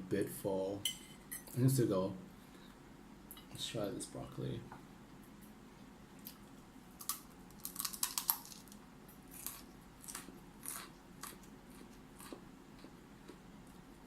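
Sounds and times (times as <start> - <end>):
broccoli crunching: 6.2 - 13.8.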